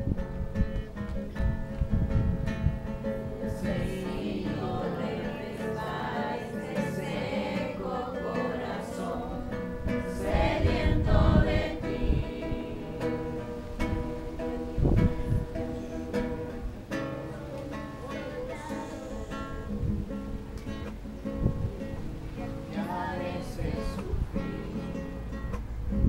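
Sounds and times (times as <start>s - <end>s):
strummed acoustic guitar: 0.0s - 26.0s
group of voices singing: 3.2s - 20.0s, 22.3s - 25.3s.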